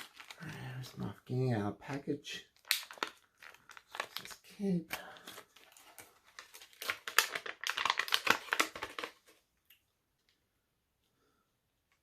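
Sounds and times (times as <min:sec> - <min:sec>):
plastic packaging crinkling: 0:00.0 - 0:01.1, 0:02.4 - 0:09.4.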